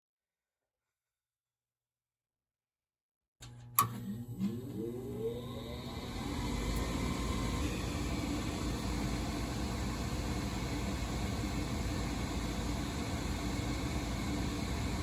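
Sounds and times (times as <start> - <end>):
furnace fan motor whine: 3.4 - 15.0.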